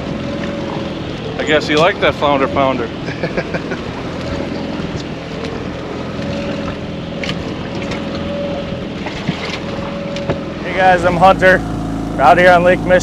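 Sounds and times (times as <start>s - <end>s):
boat engine running: 0.0s - 13.0s
wind: 0.0s - 13.0s
water noise: 10.7s - 13.0s.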